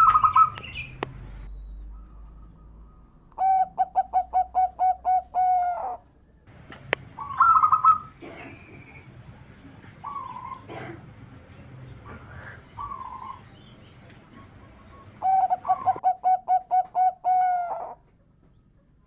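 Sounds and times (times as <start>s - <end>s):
dove cooing: 0.0s - 0.9s, 3.4s - 6.0s, 6.8s - 18.0s
trilled bird call: 0.0s - 6.1s, 7.1s - 9.2s, 10.0s - 10.7s, 12.4s - 19.0s.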